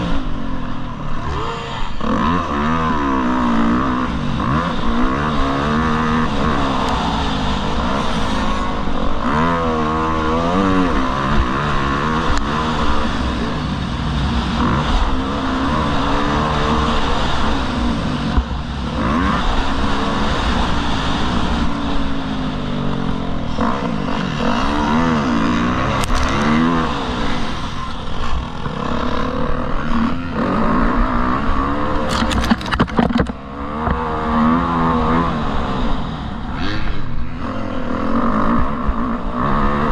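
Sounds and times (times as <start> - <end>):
motocross bike engine revving: 0.0 - 39.9
sharp clicks or knocks: 32.1 - 34.0.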